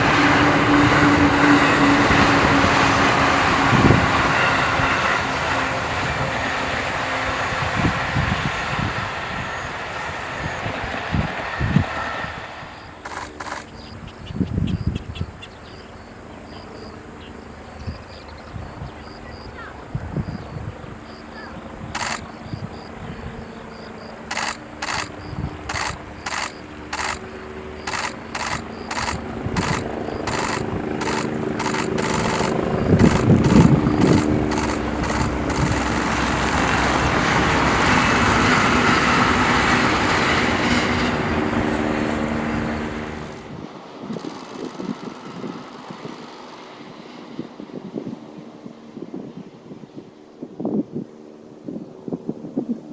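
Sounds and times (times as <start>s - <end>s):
train rolling rumble: 0.0s - 13.8s, 19.8s - 43.7s
insects chirping: 4.1s - 43.6s
low motor hum: 21.0s - 43.6s
train wheels clattering over rail joints: 24.3s - 43.4s.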